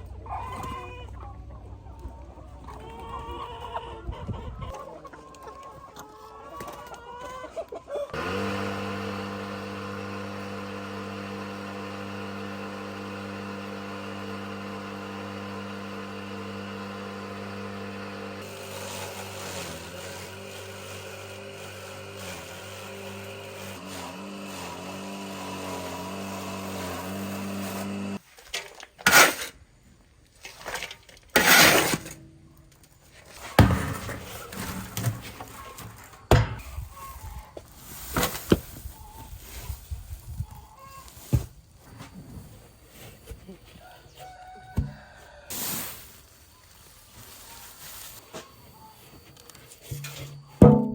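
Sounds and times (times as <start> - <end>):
machine motor humming: 8.2 - 28.2.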